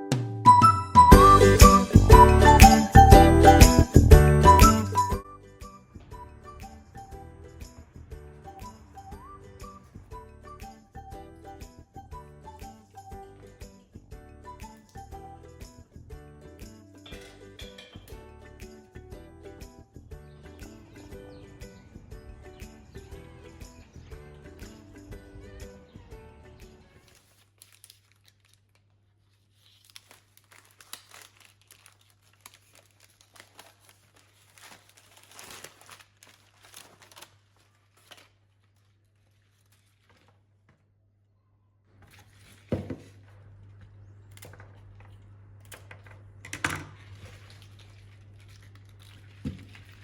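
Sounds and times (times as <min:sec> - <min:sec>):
packaging crinkling: 0:27.0 - 0:40.8, 0:46.9 - 0:50.0.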